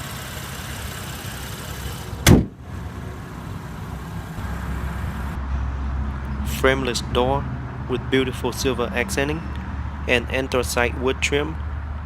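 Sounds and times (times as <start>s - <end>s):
car engine idling: 0.0s - 5.4s
car panel thump shut: 2.2s - 2.6s.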